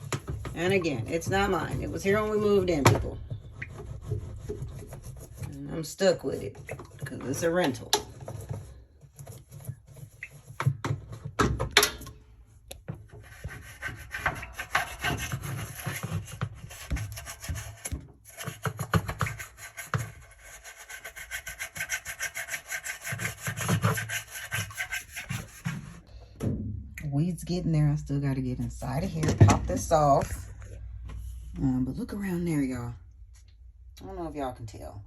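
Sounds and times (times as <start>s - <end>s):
hand scrubbing rubbing strokes: 19.3s - 26.1s.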